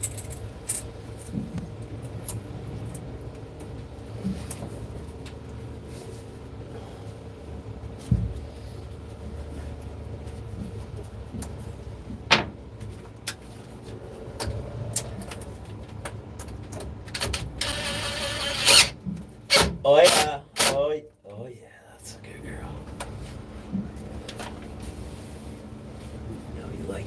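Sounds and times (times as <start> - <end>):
steady low hum: 0.0 - 27.0
knocks and clunks of tools: 12.3 - 12.6.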